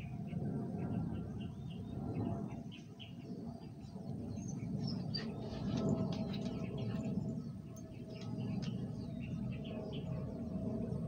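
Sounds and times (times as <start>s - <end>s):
steady low rumble: 0.0s - 11.0s
birds chirping and calling: 4.4s - 10.8s.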